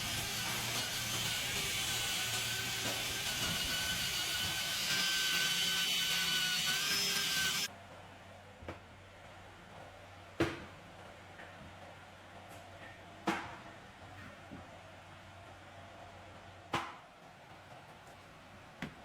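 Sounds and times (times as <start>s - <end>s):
power tool running: 0.0s - 7.7s.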